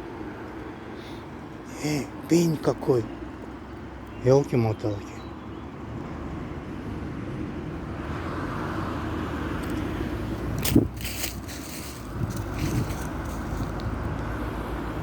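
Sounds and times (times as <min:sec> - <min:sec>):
low outdoor rumble: 0:09.6 - 0:15.0.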